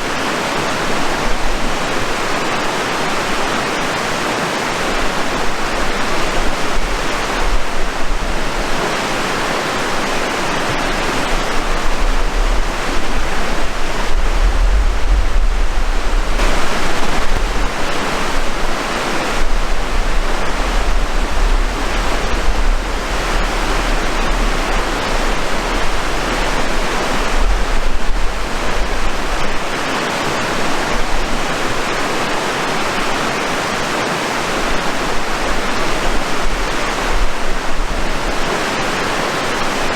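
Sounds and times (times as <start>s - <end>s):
rushing water: 0.0s - 39.9s
low rumble: 6.0s - 31.3s.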